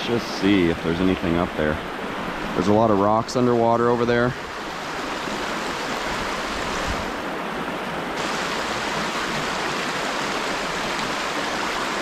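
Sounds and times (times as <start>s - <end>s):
water rushing over spillway: 0.0s - 12.0s.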